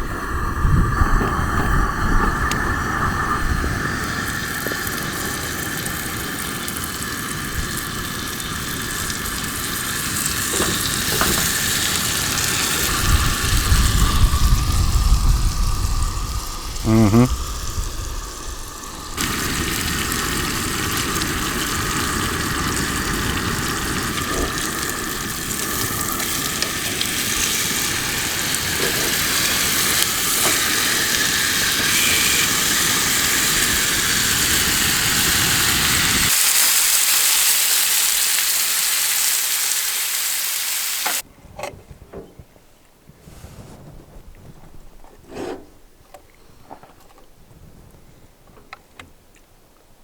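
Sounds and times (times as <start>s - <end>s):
steaks sizzling in a pan: 3.9s - 14.7s, 17.4s - 41.2s.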